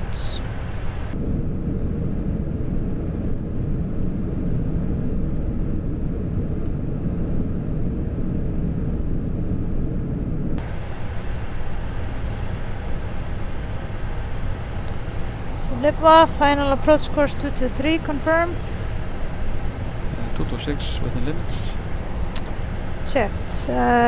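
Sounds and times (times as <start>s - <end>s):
airflow hiss: 0.0s - 1.2s, 10.6s - 24.0s
aircraft cockpit rumble: 0.0s - 8.6s, 10.0s - 24.0s.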